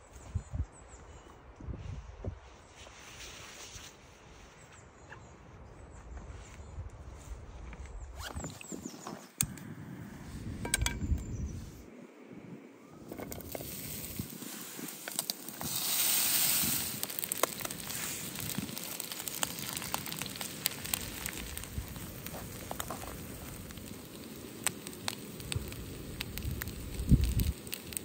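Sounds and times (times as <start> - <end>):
food sizzling and popping in pan: 13.2 - 28.0.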